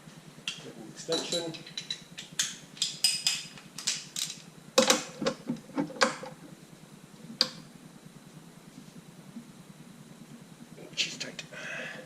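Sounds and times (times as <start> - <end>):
steel tools clinking and clicking: 0.5 - 4.4.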